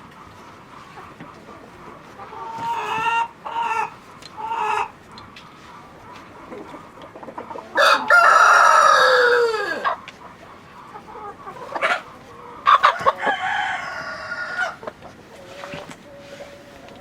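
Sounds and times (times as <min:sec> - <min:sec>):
rooster crowing: 0:07.8 - 0:10.0, 0:12.8 - 0:14.8.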